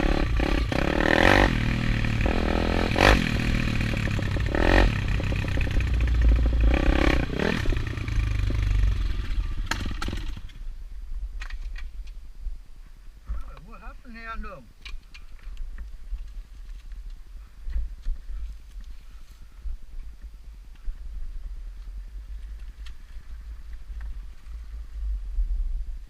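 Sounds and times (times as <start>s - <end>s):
motorbike engine revving hard: 0.0s - 10.5s.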